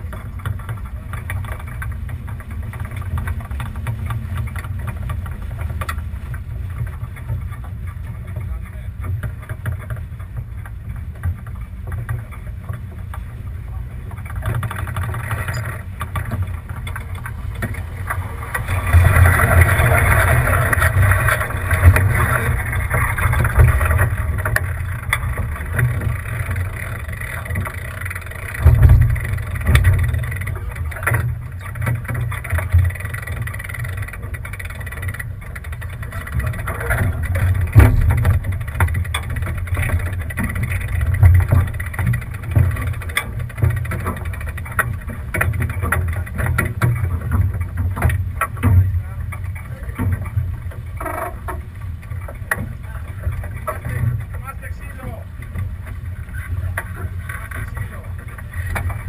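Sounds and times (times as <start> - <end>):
wind buffeting microphone: 0.0 - 59.0
water rushing past hull: 12.4 - 44.4.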